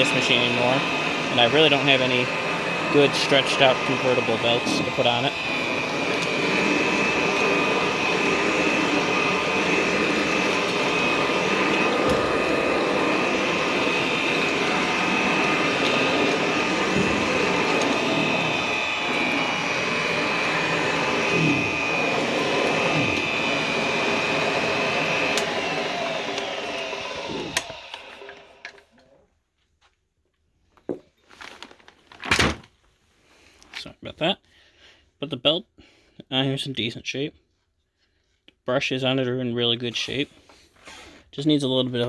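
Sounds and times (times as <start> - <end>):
motor winding down: 0.0 - 28.9
vacuum cleaner running: 0.0 - 29.0.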